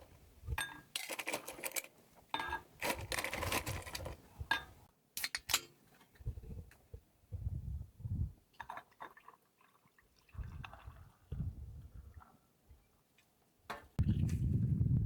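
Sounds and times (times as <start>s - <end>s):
wind buffeting microphone: 6.2s - 6.7s, 7.3s - 8.4s, 10.4s - 12.2s, 14.0s - 15.0s.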